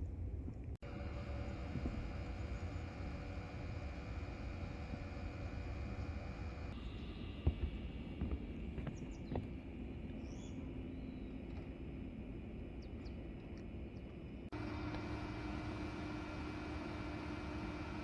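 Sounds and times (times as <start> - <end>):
low forest rumble: 0.0 - 18.0
steady hum: 0.0 - 18.0
faint bird chirps: 6.8 - 9.4, 10.2 - 11.4.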